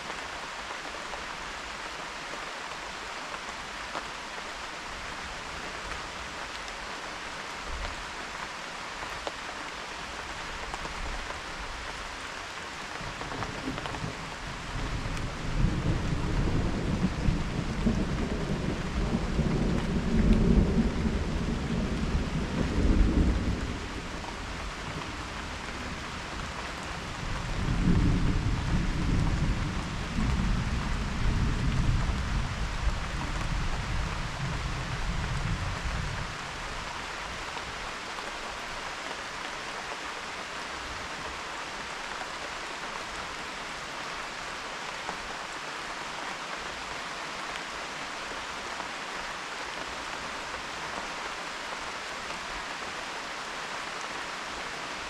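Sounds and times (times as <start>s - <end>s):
steady rain: 0.0s - 55.0s
thunder rumbling: 13.3s - 36.6s.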